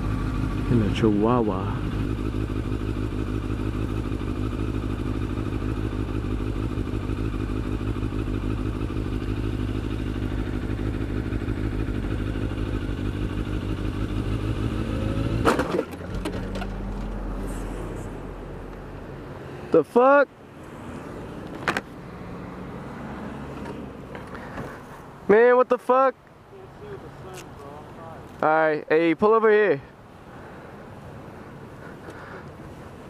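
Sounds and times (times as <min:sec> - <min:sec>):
motorcycle engine idling: 0:00.0 - 0:14.8
car crash and clatter: 0:15.4 - 0:17.2.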